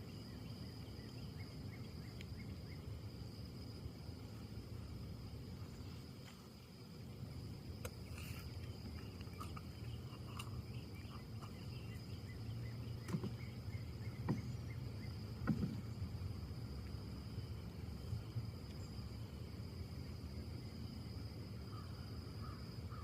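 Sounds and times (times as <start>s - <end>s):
steady low rumble: 0.0s - 22.4s
wind in trees: 0.0s - 23.0s
insect trilling: 7.2s - 23.0s.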